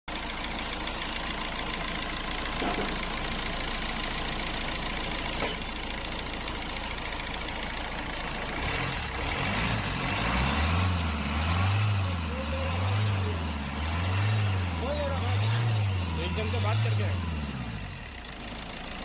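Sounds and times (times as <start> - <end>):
car engine idling: 0.1 - 19.0.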